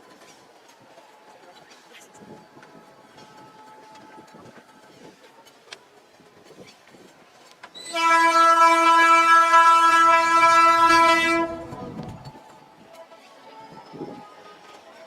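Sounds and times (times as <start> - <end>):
moving train rumbling and clicking: 0.0 - 15.0
train horn blast: 7.8 - 12.0.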